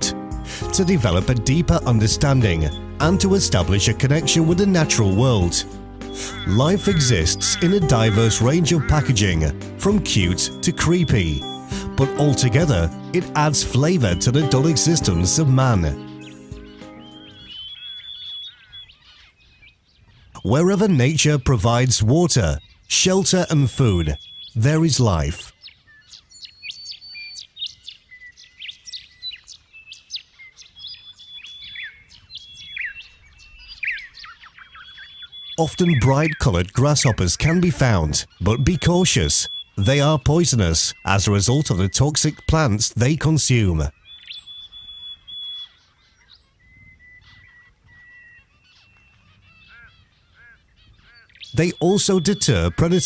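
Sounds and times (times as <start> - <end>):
birds whistling long notes: 0.0 - 21.4, 22.4 - 53.0
songbirds chirping: 0.0 - 53.0
short rising-and-falling bird calls: 6.0 - 7.8, 16.0 - 20.4, 25.5 - 35.6, 39.4 - 39.8, 43.9 - 51.6
bird whistled notes: 16.0 - 19.1, 39.4 - 39.8, 43.9 - 49.2.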